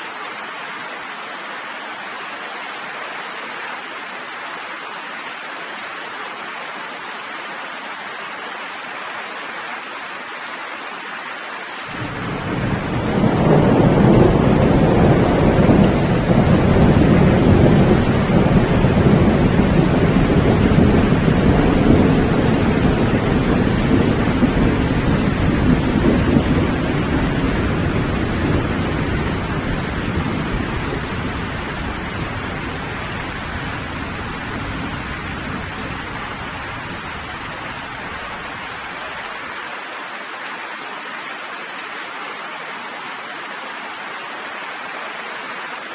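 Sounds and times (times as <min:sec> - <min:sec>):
rain hissing: 0:11.1 - 0:39.8
deep rumble of thunder: 0:12.0 - 0:37.9.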